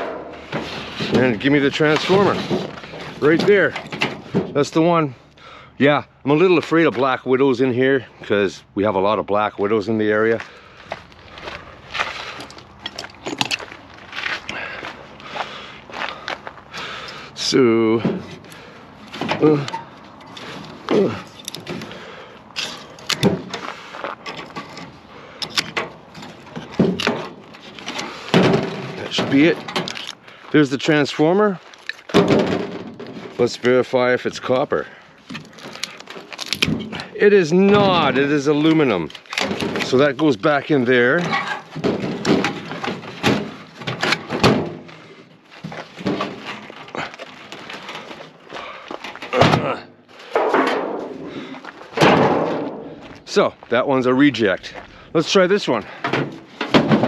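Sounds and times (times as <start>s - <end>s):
metal knocks and clunks: 0.0s - 4.8s, 17.6s - 30.3s, 31.8s - 33.8s, 35.2s - 53.5s, 55.8s - 57.0s
metal clanks and rattles: 0.0s - 5.0s, 11.4s - 15.3s, 16.6s - 53.6s, 55.6s - 57.0s.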